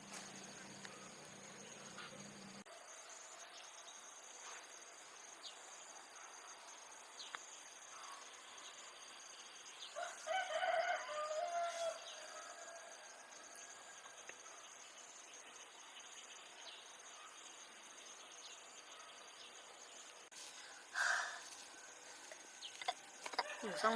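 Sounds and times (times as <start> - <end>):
insects chirring: 0.0 - 23.9
rooster crowing: 10.0 - 13.5, 23.3 - 23.9.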